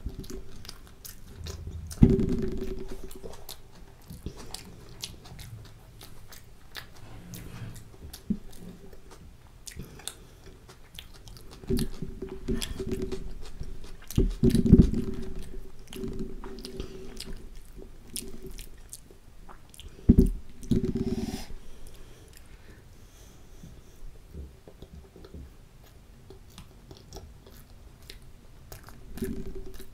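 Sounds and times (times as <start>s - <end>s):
chewing with wet mouth clicks: 0.0s - 2.0s, 2.6s - 7.0s, 8.1s - 20.8s, 24.7s - 29.9s
low thumps: 1.2s - 3.6s.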